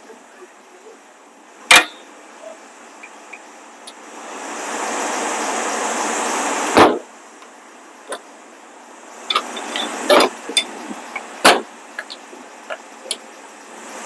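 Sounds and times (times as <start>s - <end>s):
loud heavy thump: 6.8s - 7.1s.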